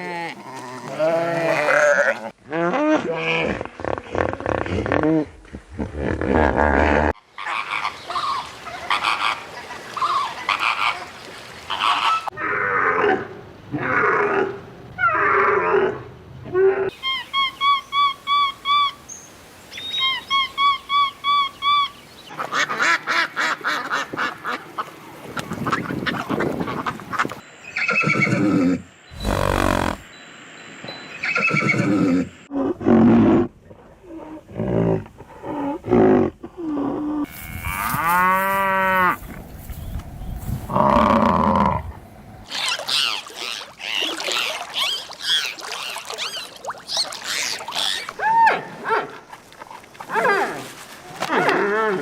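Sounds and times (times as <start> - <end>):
animal calls and cries: 13.8 - 30.1, 35.4 - 49.3.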